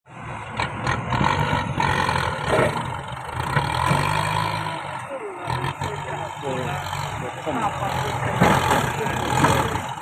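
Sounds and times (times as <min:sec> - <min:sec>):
tractor engine under load: 0:00.1 - 0:10.0
knocks and scrapes: 0:08.1 - 0:10.0.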